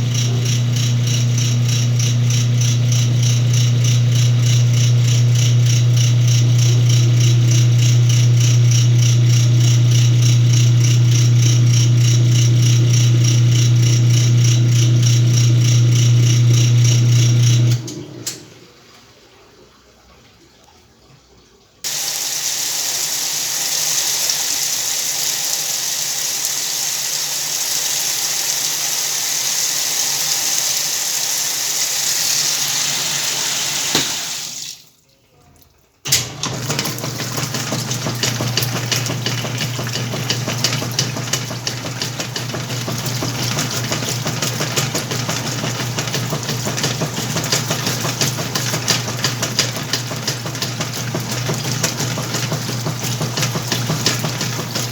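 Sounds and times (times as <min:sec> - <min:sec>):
washing machine rattle: 0:00.0 - 0:18.7, 0:36.0 - 0:54.9
washing machine motor humming: 0:00.0 - 0:20.4, 0:21.8 - 0:34.9, 0:35.9 - 0:54.9
water pouring into tub: 0:21.8 - 0:54.9.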